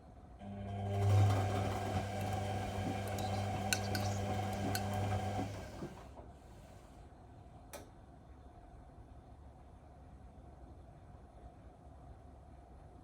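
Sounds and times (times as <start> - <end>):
washing machine hum: 0.4 - 7.0.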